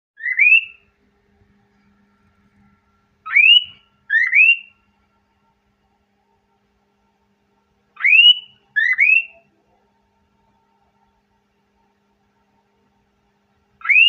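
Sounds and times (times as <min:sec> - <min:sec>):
cockatiel whistles: 0:00.2 - 0:00.8, 0:03.2 - 0:04.8, 0:08.0 - 0:09.5, 0:13.8 - 0:14.0.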